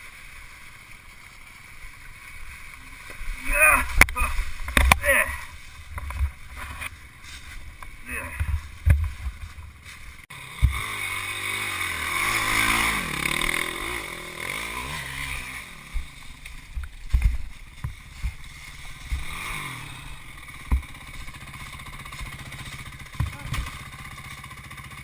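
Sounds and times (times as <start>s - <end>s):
dirt bike engine revving: 1.6s - 25.0s
sharp thumps: 3.9s - 5.2s, 7.7s - 11.0s, 15.8s - 24.1s.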